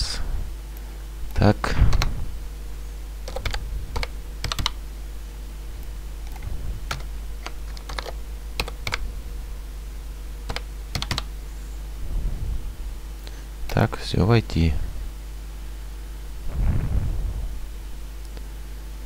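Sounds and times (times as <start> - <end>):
low electrical hum: 0.0 - 19.0
keyboard typing: 3.2 - 4.8, 6.2 - 9.0, 10.5 - 11.3.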